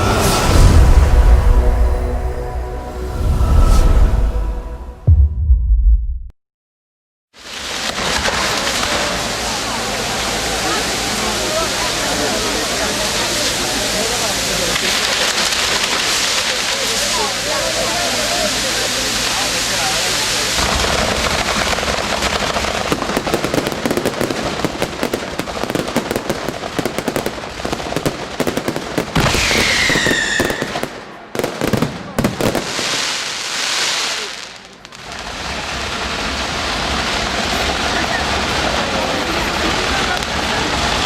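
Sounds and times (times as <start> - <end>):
fireworks crackling: 0.0 - 2.1, 7.4 - 41.0
firework bangs: 7.4 - 41.0
falling firework whistle: 29.1 - 34.3.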